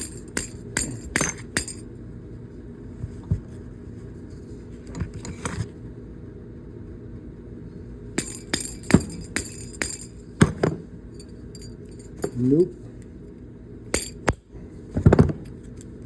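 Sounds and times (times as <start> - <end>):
hammer striking steel shaft: 8.2 - 10.8.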